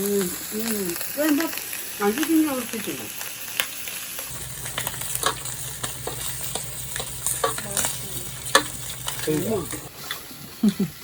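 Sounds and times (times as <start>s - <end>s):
steady hiss: 0.0s - 10.1s
chopsticks clicking against dishes: 4.3s - 9.9s
low hum: 4.3s - 9.9s.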